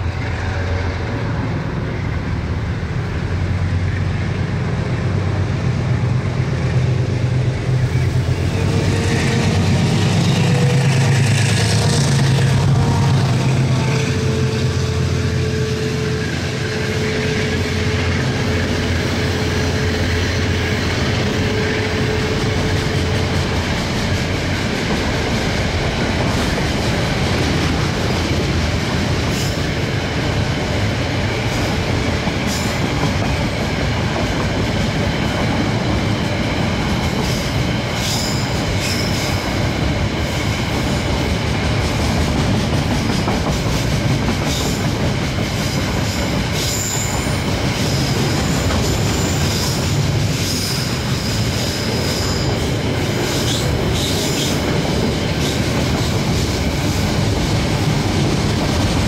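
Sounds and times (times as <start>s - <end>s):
locomotive engine: 0.0s - 29.2s
train wheels rumbling on rail: 0.0s - 59.0s.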